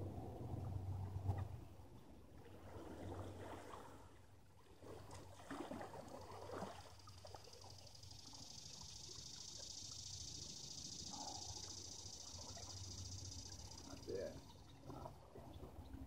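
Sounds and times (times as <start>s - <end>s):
water sloshing and dripping: 0.5s - 8.5s, 11.2s - 16.0s
small water splashes: 2.3s - 9.1s.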